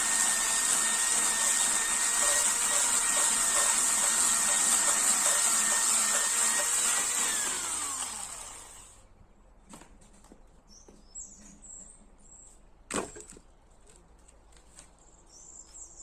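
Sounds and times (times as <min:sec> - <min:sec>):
chainsaw running and winding down: 0:00.0 - 0:09.0.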